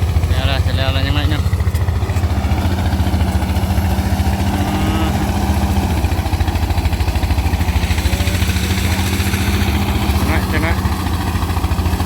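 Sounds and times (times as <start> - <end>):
threshing machine engine throbbing: 0.0 - 12.0
steady hum: 3.5 - 10.8.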